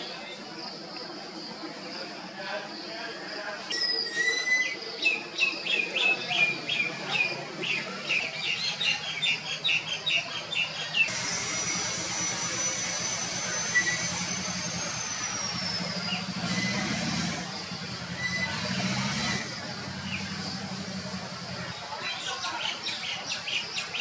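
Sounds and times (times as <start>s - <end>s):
distant traffic hum: 4.3s - 24.0s.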